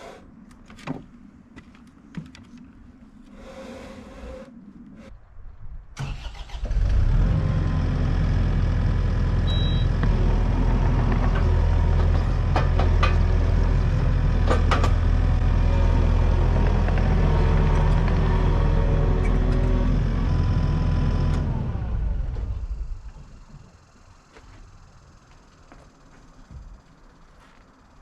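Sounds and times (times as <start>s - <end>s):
engine starting and running: 6.0s - 24.3s.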